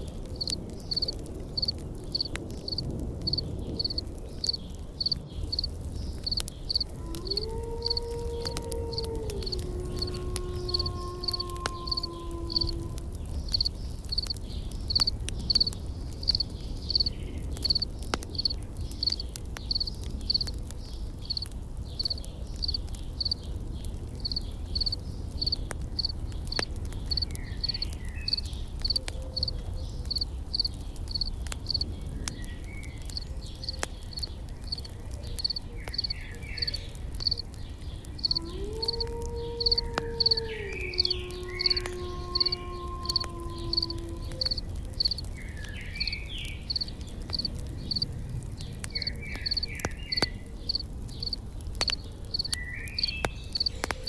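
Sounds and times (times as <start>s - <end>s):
campfire crackling and popping: 0.0s - 54.0s
cricket chirping: 0.4s - 6.9s, 8.9s - 12.8s, 13.5s - 20.6s, 21.3s - 23.4s, 24.2s - 29.5s, 30.1s - 31.8s, 33.1s - 37.4s, 39.6s - 40.4s, 41.0s - 45.3s, 46.0s - 48.1s, 49.4s - 54.0s.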